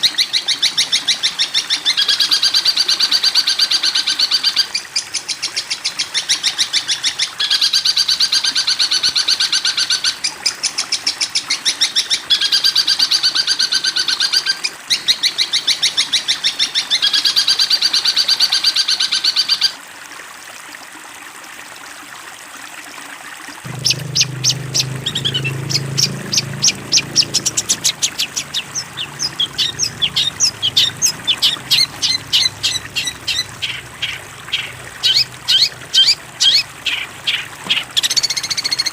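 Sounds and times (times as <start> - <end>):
low hum: 23.7 - 37.6
songbird buzzy repeated notes: 23.7 - 38.6
quick sharp bird chirps: 23.7 - 38.9.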